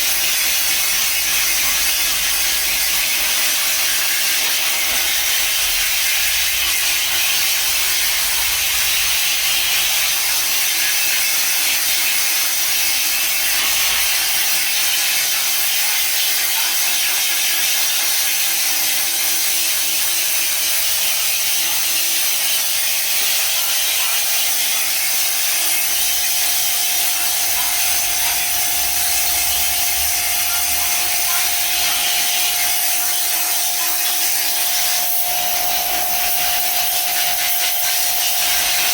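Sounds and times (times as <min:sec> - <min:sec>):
pressure washer motor humming: 0:25.2 - 0:38.9
pressure washer spraying: 0:25.7 - 0:38.9.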